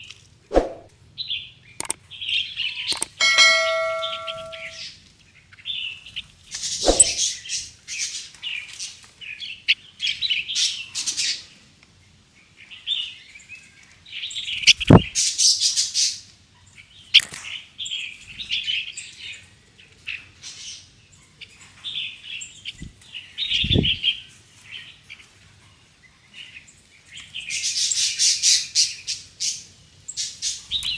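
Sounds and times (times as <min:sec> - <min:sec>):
songbirds chirping: 0:00.0 - 0:30.9
ringing tone: 0:03.2 - 0:04.8.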